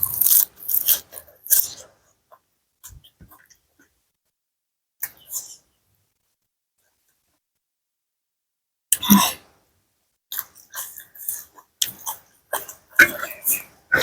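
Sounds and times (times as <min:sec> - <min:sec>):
close-up chewing and biting: 0:00.0 - 0:01.8.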